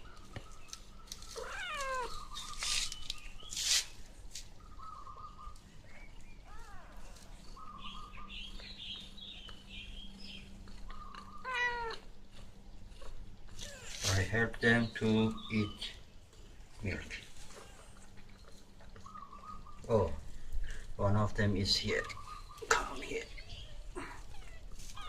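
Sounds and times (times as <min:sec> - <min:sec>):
cat meowing: 0:01.4 - 0:02.3, 0:11.4 - 0:12.1, 0:23.4 - 0:25.0.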